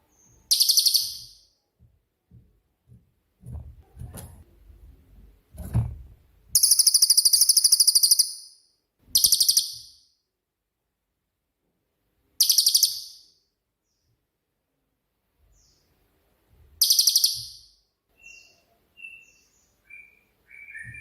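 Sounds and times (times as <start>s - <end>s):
songbird trilling: 0.2s - 1.4s, 6.6s - 8.4s
faint low knocks: 1.8s - 6.4s.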